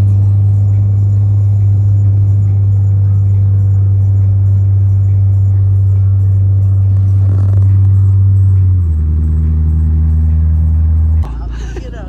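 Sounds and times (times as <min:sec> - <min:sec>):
loud low hum: 0:00.0 - 0:12.0.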